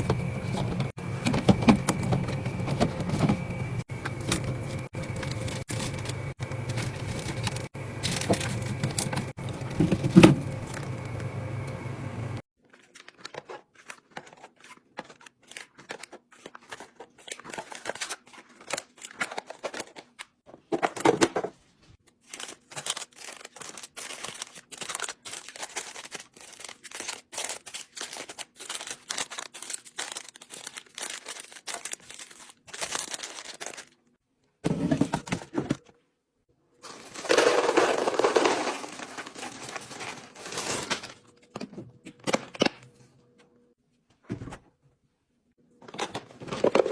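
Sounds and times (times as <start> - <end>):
items knocking when set down: 0.0 - 10.8, 34.6 - 35.9, 36.8 - 42.8
plastic crinkling and tearing: 22.2 - 34.0, 36.8 - 41.2.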